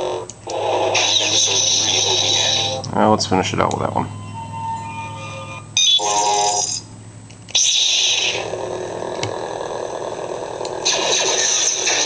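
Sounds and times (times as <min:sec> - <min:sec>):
lightsaber electronic hum: 0:00.0 - 0:12.0
lightsaber ignition bursts: 0:00.4 - 0:02.8, 0:05.8 - 0:06.8, 0:07.5 - 0:09.5, 0:10.6 - 0:12.0.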